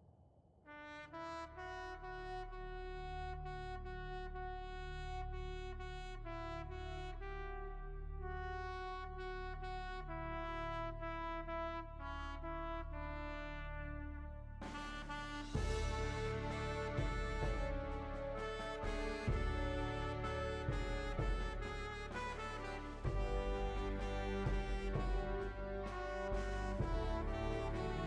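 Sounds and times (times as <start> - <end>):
trumpet playing slow melody: 0.7 - 28.0
low sustained accompaniment: 15.6 - 28.0.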